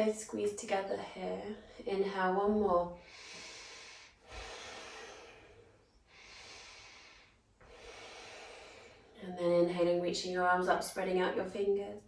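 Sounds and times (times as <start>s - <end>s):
woman breathing deeply: 3.0s - 9.2s.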